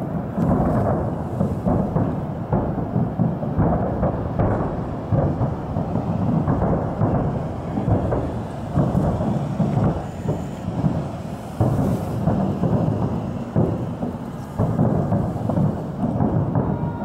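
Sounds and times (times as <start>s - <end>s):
distant fireworks booming: 0.0s - 17.0s.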